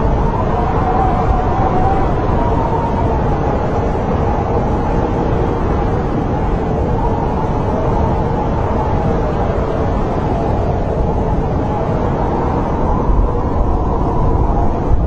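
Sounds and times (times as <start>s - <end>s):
snowstorm wind rushing: 0.0s - 15.0s.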